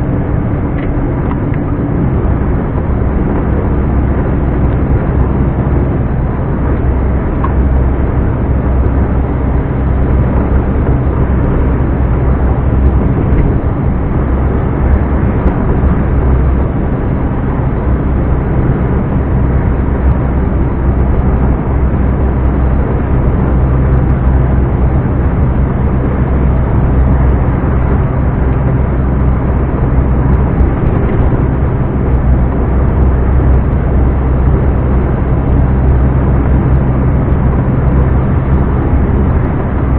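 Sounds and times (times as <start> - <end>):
diesel truck engine drone: 0.0 - 39.9.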